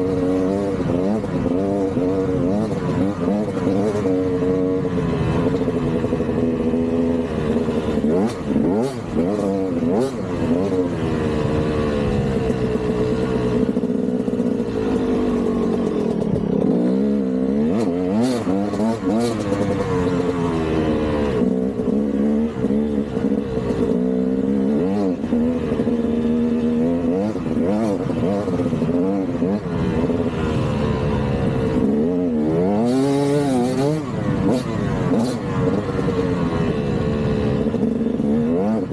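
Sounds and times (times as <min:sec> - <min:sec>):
two-stroke dirt bike engine revving: 0:00.0 - 0:38.9.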